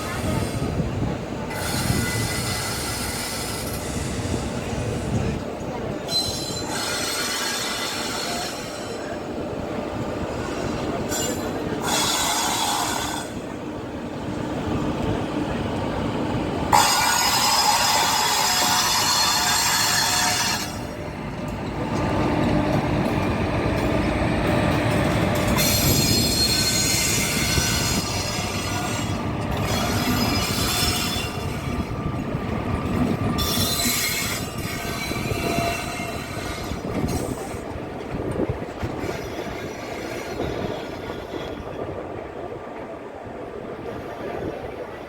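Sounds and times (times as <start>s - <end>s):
high-pitched creaking and squealing: 16.8s - 20.9s, 25.6s - 31.9s, 32.9s - 37.4s.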